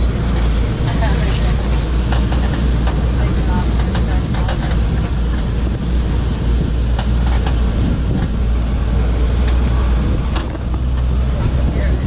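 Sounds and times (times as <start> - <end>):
vehicle engine and road rumble: 0.0 - 12.0
short rattles or knocks: 6.9 - 8.5.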